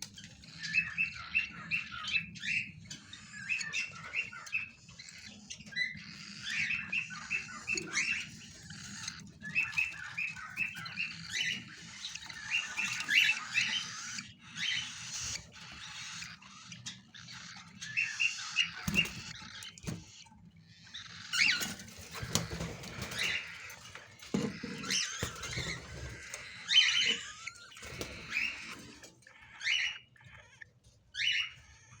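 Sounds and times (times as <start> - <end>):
bird chick chirping: 0.0 - 32.0.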